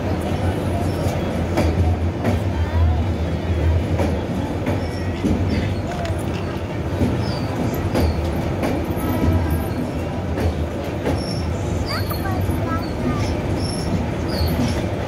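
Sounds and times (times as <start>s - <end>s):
train wheels rumbling on rails: 0.0s - 15.0s
high wheel squeaks: 4.6s - 15.0s.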